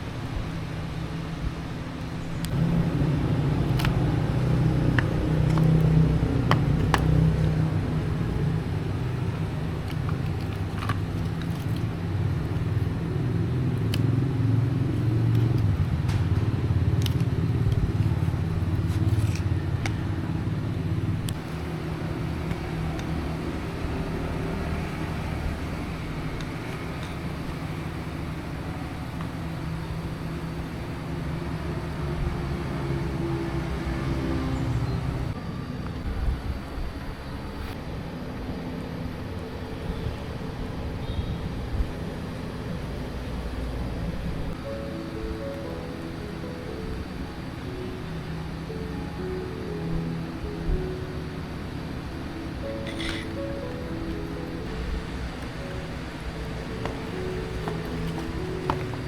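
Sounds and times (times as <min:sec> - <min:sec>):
machine rumbling: 0:00.0 - 0:40.8.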